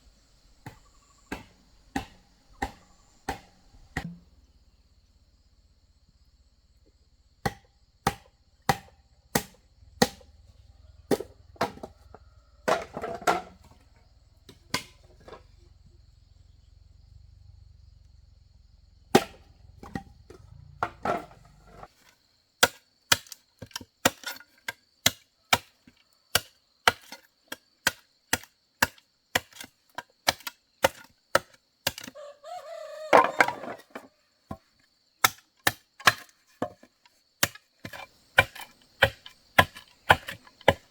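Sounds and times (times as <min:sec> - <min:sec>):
tool striking wood: 0:00.6 - 0:04.2, 0:37.4 - 0:40.9.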